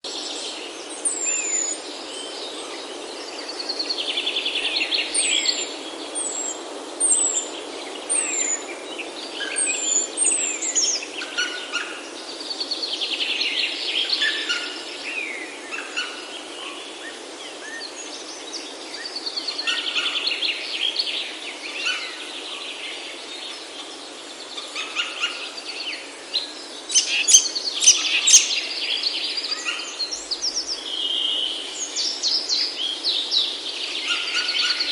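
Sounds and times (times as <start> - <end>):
steady background hiss: 0.1 - 34.9
bird trilling: 26.9 - 28.5
sharp bird calls: 26.9 - 31.6.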